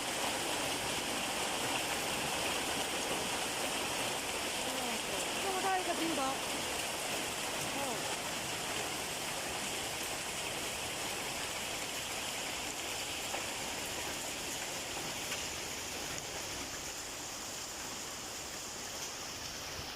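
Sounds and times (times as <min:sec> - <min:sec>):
heavy rain pouring: 0:00.0 - 0:19.9
faint hail ticks: 0:04.5 - 0:08.2.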